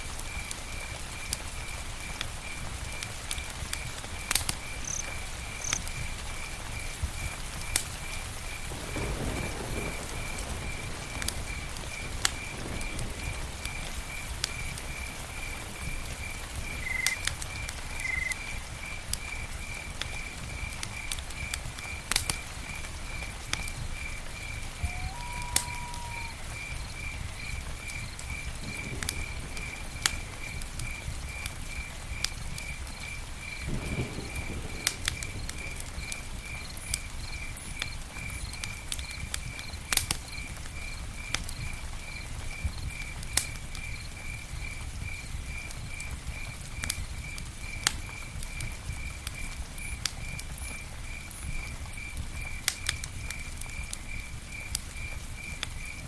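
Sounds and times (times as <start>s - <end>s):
campfire crackling and popping: 0.0s - 56.0s
low rumble of campfire: 0.0s - 56.0s
cricket chirping: 0.3s - 56.0s
whistled note: 24.8s - 26.3s.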